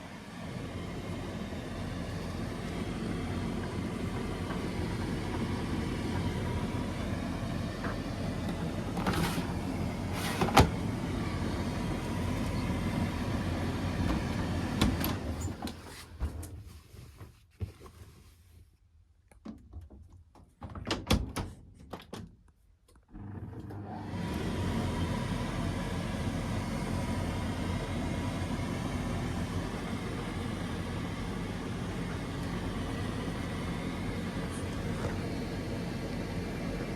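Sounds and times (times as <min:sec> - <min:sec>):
tumble dryer humming: 0:00.0 - 0:15.8, 0:23.2 - 0:36.9.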